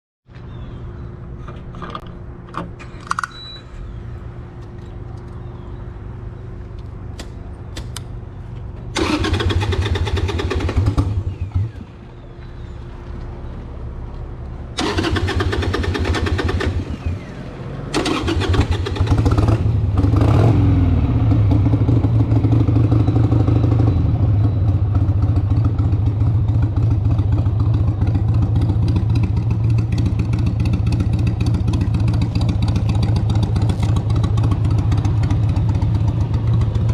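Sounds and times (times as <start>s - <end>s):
motorcycle engine revving: 9.0s - 11.9s, 14.8s - 36.9s.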